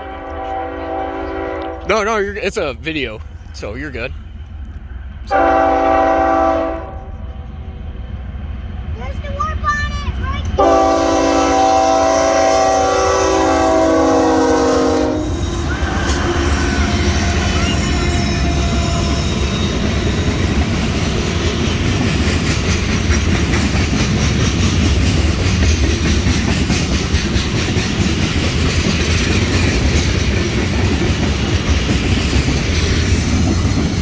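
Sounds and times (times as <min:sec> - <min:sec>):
freight train rolling past: 0:00.0 - 0:34.0
wheels clacking over rail joints: 0:15.5 - 0:34.0.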